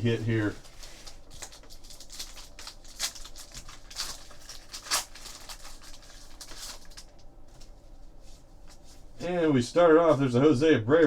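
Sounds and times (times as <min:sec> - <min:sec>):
card pack wrappers crinkling: 0:00.0 - 0:07.7.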